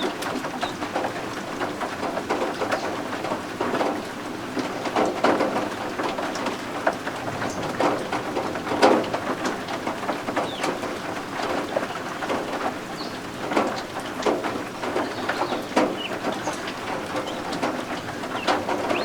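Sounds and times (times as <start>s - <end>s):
rain pattering: 0.0s - 19.0s
guinea fowl chicks calling: 10.4s - 12.2s, 14.8s - 19.0s.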